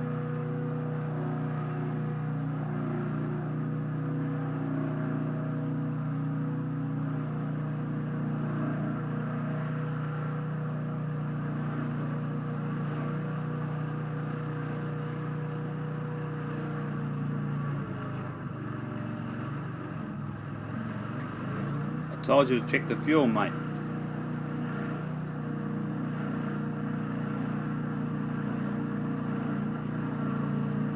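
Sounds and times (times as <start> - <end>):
sawmill engine running: 17.0 - 30.9.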